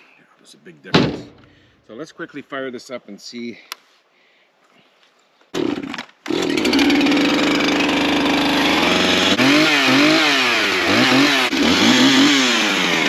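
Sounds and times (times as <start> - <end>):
chainsaw engine revving: 5.6 - 13.0.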